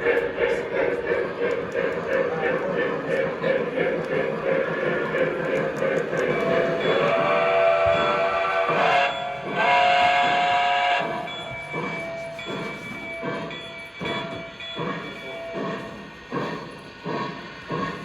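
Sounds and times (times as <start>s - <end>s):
model locomotive chuffs: 0.0s - 18.0s
model locomotive whistle: 6.4s - 12.4s.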